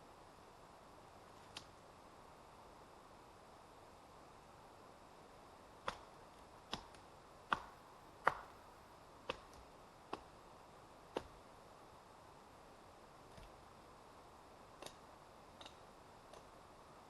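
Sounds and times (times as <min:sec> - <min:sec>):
faint steady hiss: 0:00.0 - 0:17.0
sharp knocks on wood: 0:07.5 - 0:08.5.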